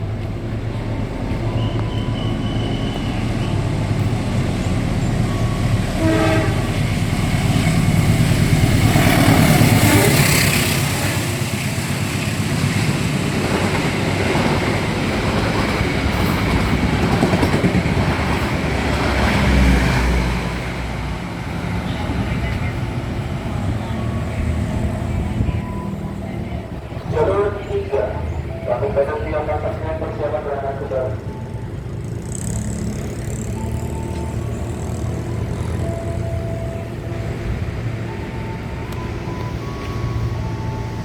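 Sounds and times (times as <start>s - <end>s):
train running on rails: 0.0s - 41.0s
train horn blast: 5.4s - 7.1s, 8.9s - 11.5s.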